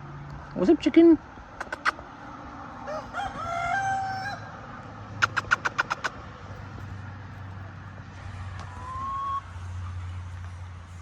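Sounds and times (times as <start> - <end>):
chicken clucking: 1.6 - 2.0, 5.2 - 7.8, 8.6 - 9.4
rooster crowing: 2.8 - 4.6.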